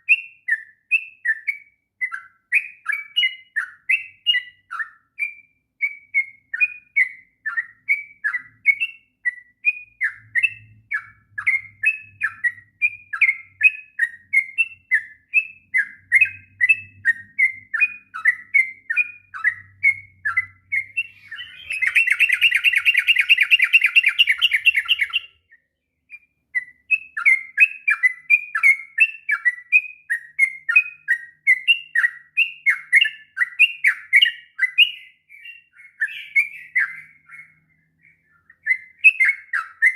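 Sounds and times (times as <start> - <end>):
bulbul chirping song: 0.0 - 39.9
fast dense bird trill: 10.0 - 39.9.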